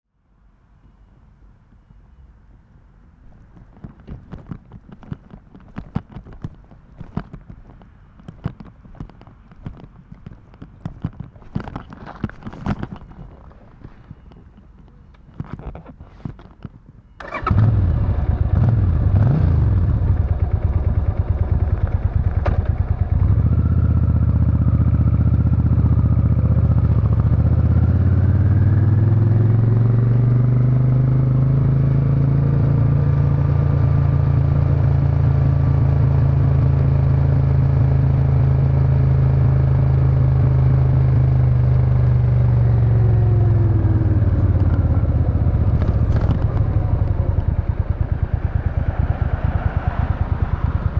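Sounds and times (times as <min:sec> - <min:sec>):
motorcycle engine revving: 0:17.2 - 0:50.9.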